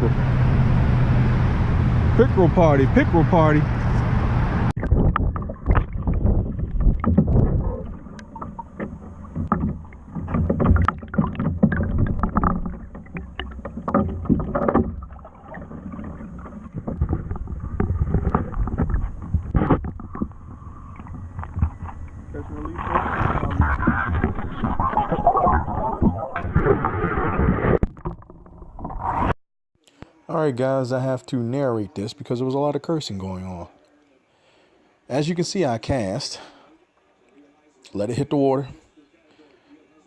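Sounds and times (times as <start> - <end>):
wind rumbling on microphone: 3.6 - 27.8
handling knocks and clunks: 4.8 - 22.2.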